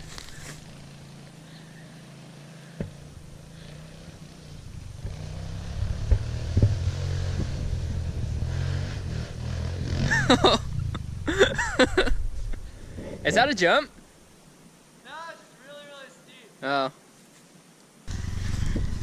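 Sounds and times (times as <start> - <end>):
small motorcycle engine running: 0.0 - 11.0, 18.1 - 19.0.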